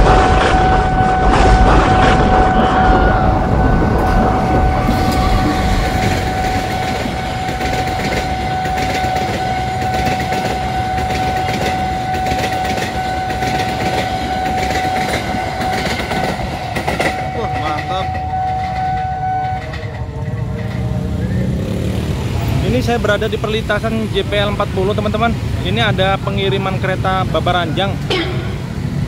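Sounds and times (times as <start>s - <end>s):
low rumble: 0.0s - 8.6s
level-crossing warning tone: 0.0s - 21.4s, 28.1s - 29.0s
train wheels clattering over rails: 0.0s - 22.0s.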